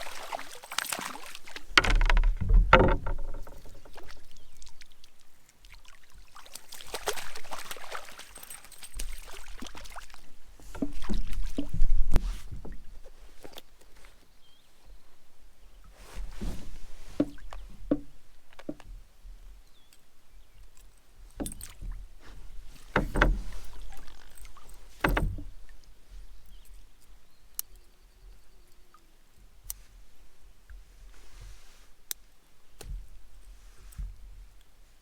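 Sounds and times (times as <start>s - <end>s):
water splashing: 0.0s - 11.8s
knocks against canoe hull: 1.5s - 4.1s, 22.8s - 23.9s, 25.0s - 25.6s.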